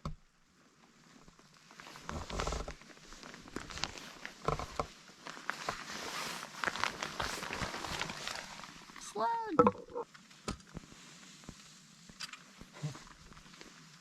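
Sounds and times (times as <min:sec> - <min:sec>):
rustling: 0:00.6 - 0:14.0.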